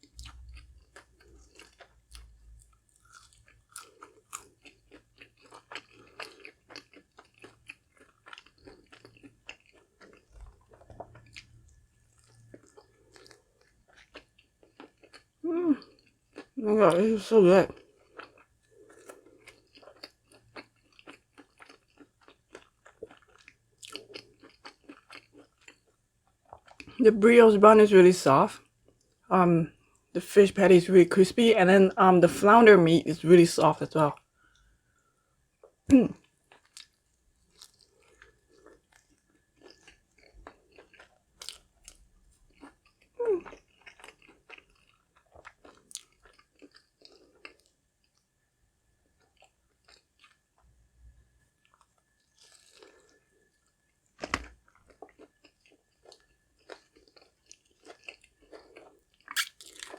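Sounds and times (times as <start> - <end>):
crunchy chewing: 0.0 - 16.6, 17.7 - 27.0, 36.4 - 48.2, 49.1 - 50.6, 51.6 - 59.9.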